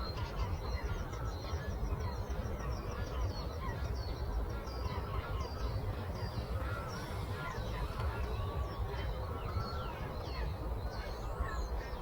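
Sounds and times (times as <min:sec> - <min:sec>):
songbirds chirping: 0:03.9 - 0:12.0.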